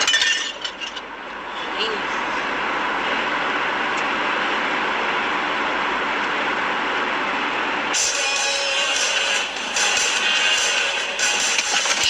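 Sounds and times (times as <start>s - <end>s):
car road noise: 0.0s - 8.0s.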